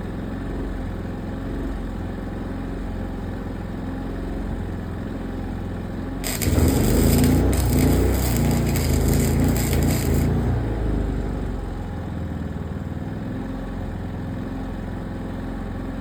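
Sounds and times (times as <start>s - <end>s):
welding arc hissing: 6.2s - 10.5s.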